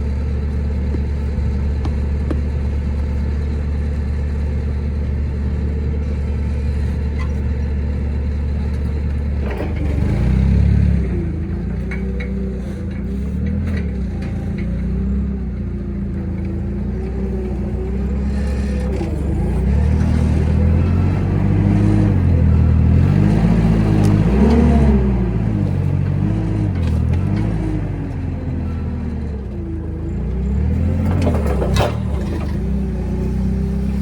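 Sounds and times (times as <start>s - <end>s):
engine revving: 9.3s - 15.5s, 16.2s - 34.0s.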